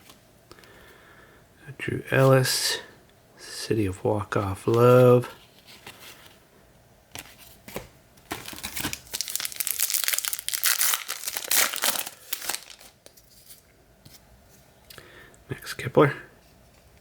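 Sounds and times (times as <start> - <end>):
plastic wrapper tearing and crinkling: 8.3 - 13.2.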